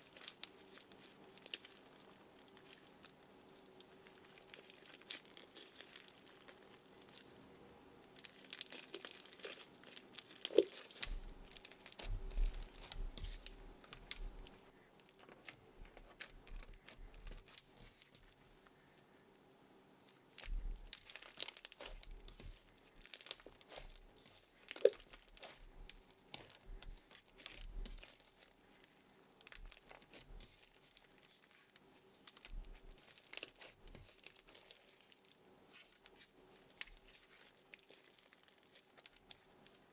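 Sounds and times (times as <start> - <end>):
slime with beads crackling: 0.0 - 39.9.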